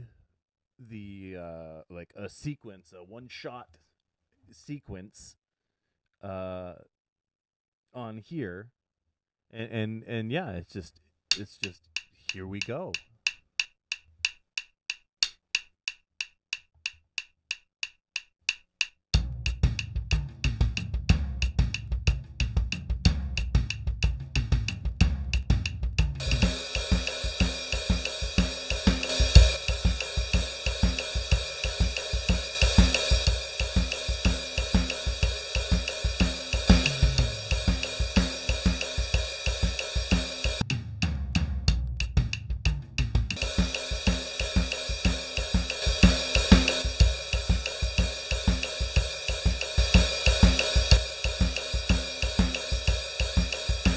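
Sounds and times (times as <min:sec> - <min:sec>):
cymbals and hi-hat: 0:19.2 - 0:53.9
kick and low drums: 0:19.2 - 0:53.9.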